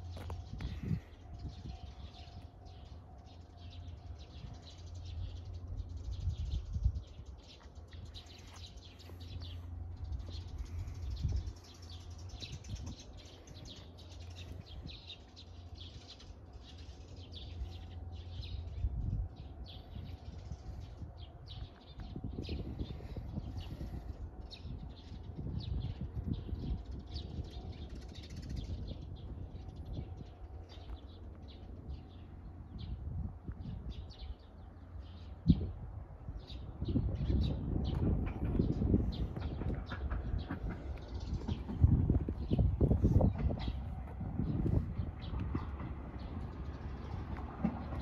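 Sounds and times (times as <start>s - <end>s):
small birds chirping: 0.0s - 48.0s
steady low rumble: 0.0s - 48.0s.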